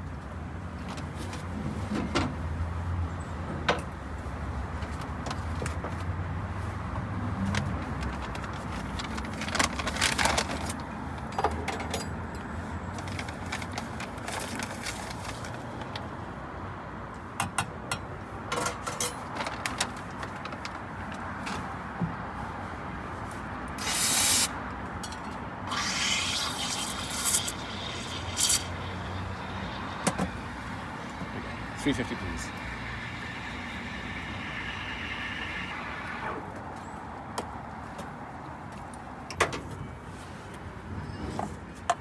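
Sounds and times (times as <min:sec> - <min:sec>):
steady background hum: 0:23.5 - 0:38.4
short loud hiss: 0:23.8 - 0:24.5, 0:25.7 - 0:36.4
cups clinking and scraping: 0:23.8 - 0:36.4.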